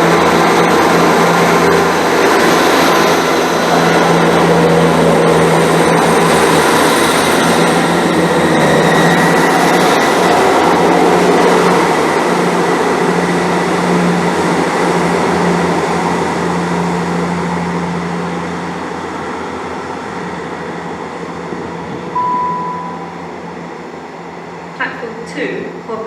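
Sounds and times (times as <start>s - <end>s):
rail noise: 0.0s - 25.2s
train engine hum: 0.0s - 26.0s
short beep: 22.2s - 23.4s.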